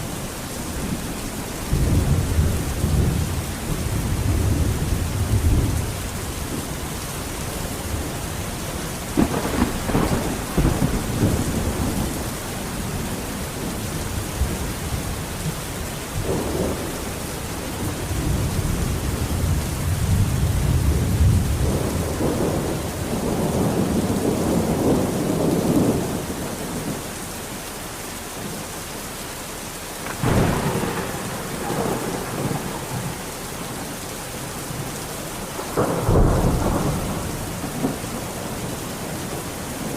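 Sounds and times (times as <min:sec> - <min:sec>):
thunder rumbling: 0:00.0 - 0:27.0, 0:30.0 - 0:39.9
heavy rain: 0:00.0 - 0:39.9
sharp thunderclap: 0:09.1 - 0:13.8, 0:30.0 - 0:33.2, 0:35.6 - 0:39.9.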